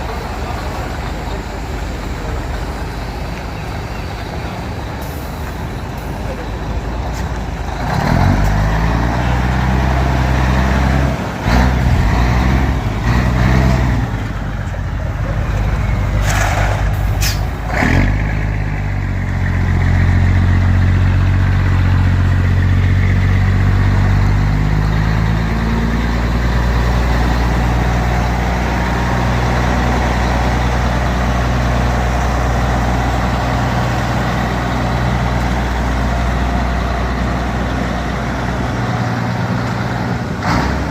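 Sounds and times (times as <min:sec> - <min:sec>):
truck engine running: 0:00.0 - 0:40.9.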